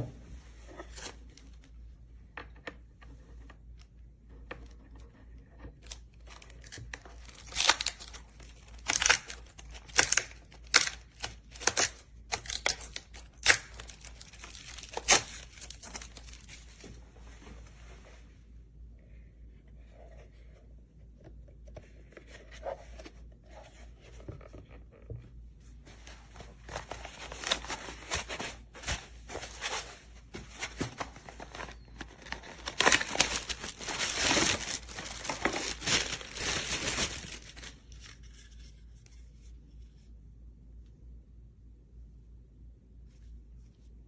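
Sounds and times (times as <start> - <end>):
crinkling and tearing: 5.6 - 17.0, 26.6 - 39.1.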